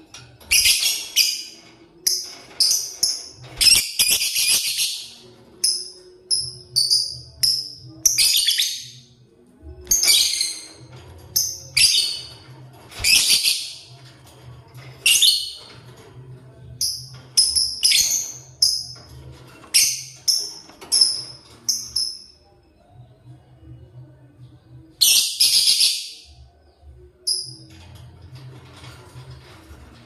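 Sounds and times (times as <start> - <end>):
lovebird chirping and screeching: 3.6 - 5.1, 13.0 - 13.8.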